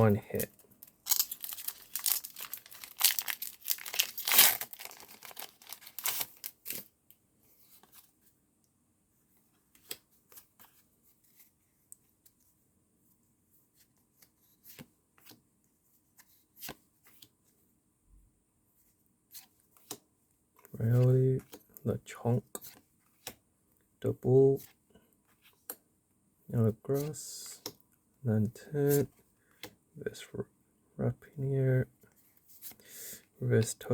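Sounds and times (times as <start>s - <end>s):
foil wrapper tearing: 1.0s - 6.6s.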